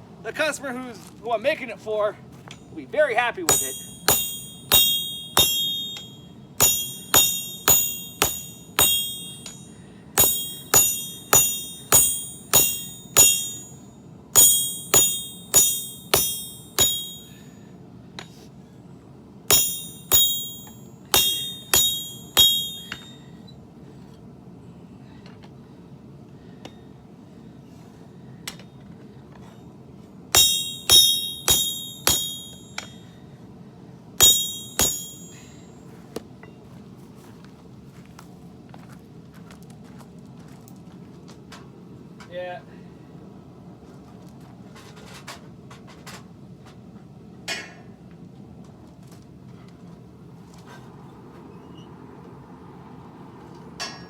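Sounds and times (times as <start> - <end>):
hammer ringing on anvil: 3.4 - 17.6, 19.5 - 23.6, 30.3 - 33.2, 34.2 - 35.8.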